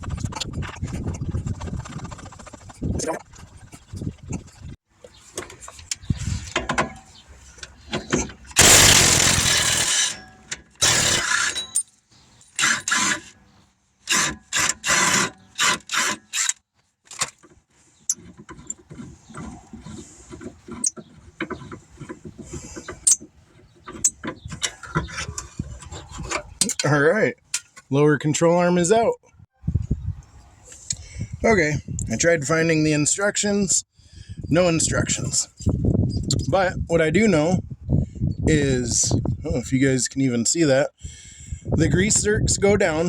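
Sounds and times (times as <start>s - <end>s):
hand ratchet spinning bolts: 8.6s - 11.9s
metal clanks of tools: 9.5s - 12.0s.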